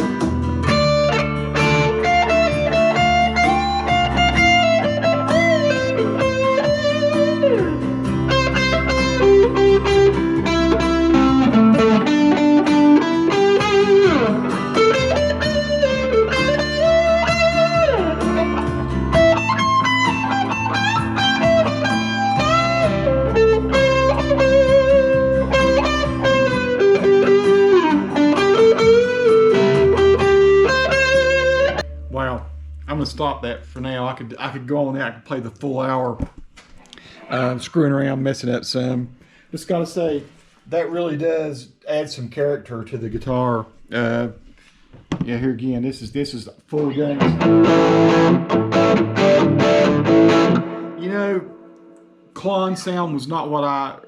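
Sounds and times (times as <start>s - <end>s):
overdriven electric guitar lead: 0.0s - 31.9s, 46.8s - 52.1s
backing track: 0.0s - 34.2s, 46.8s - 52.8s.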